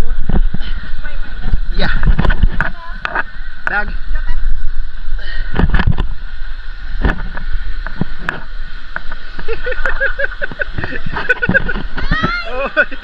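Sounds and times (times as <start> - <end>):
wind buffeting microphone: 0.0 - 13.0
voices calling out: 9.2 - 13.0.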